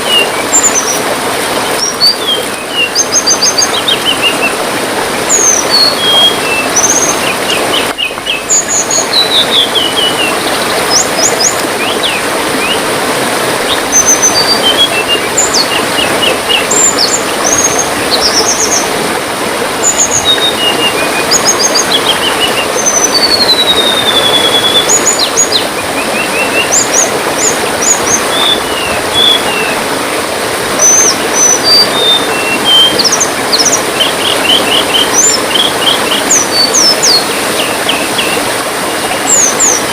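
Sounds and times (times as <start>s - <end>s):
trickling water: 0.0s - 39.9s
songbirds chirping: 5.3s - 12.9s.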